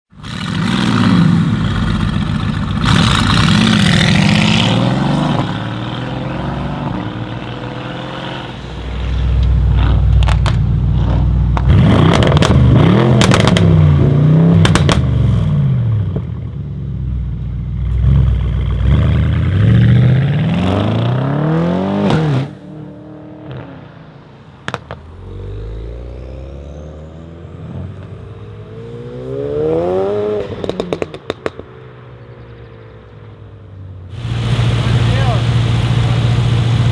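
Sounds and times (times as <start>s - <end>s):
exhaust cracks: 0.2s - 7.8s, 8.4s - 16.6s, 34.1s - 36.9s
car engine revving: 0.2s - 16.3s, 34.1s - 36.9s.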